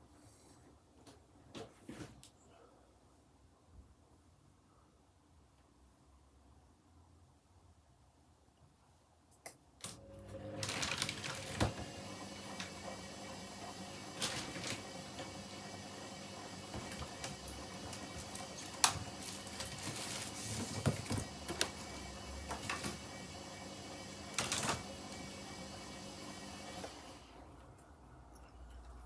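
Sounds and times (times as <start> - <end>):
washing machine motor hum: 9.8 - 27.9.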